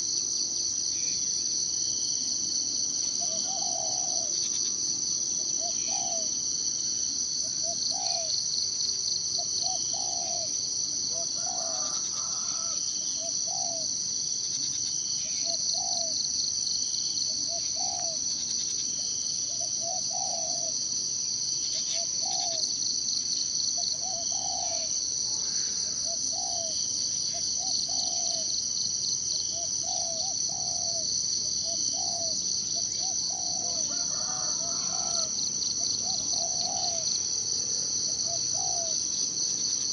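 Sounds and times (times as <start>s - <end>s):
insects chorus: 0.0s - 39.9s
bird low call: 3.2s - 4.4s, 5.6s - 6.3s, 23.8s - 28.5s, 36.0s - 37.0s, 38.2s - 39.0s.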